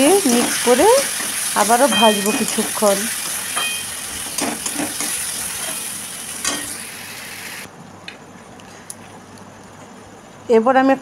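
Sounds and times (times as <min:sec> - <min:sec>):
vegetables sizzling in a wok: 0:00.0 - 0:07.7.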